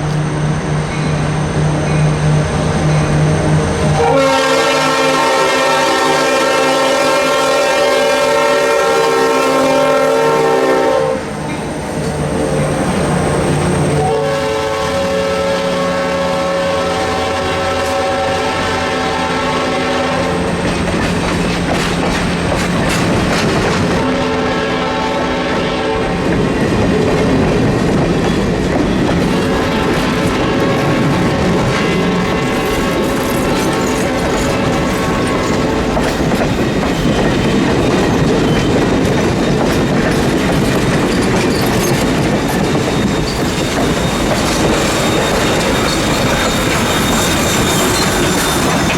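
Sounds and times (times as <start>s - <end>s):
train running and rail clatter: 0.0s - 48.9s
steam whistle blasts: 4.0s - 11.3s, 13.9s - 20.4s, 24.0s - 26.2s.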